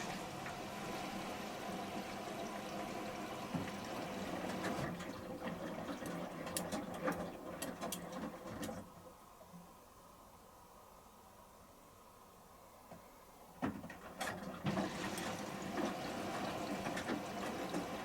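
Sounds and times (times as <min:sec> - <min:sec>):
washing machine filling with water: 0:00.0 - 0:09.0, 0:13.6 - 0:18.0.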